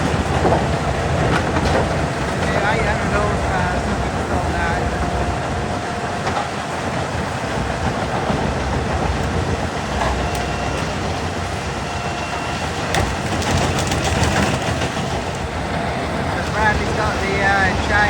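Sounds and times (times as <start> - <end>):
wood chipper running: 0.0 - 18.0
wood cracking and clattering: 12.9 - 15.4.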